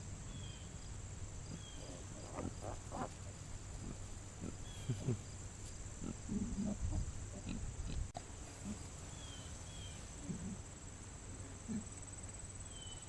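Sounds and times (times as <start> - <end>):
high-pitched insect hum: 0.0 - 13.0
piglets grunting: 1.5 - 3.2, 3.8 - 5.2, 6.0 - 8.8, 10.2 - 10.7.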